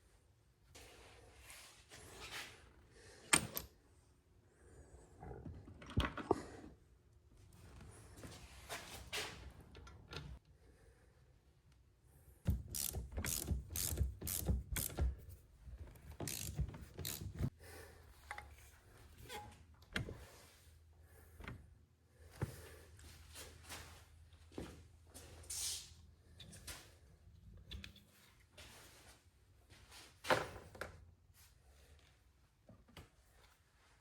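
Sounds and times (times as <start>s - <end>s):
ratchet wrench clicking: 12.5s - 15.1s, 16.2s - 17.4s.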